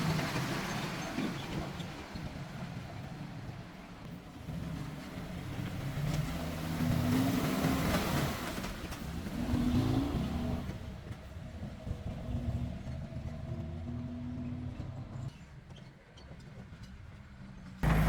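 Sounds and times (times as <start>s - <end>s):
diesel engine revving: 4.3s - 15.3s.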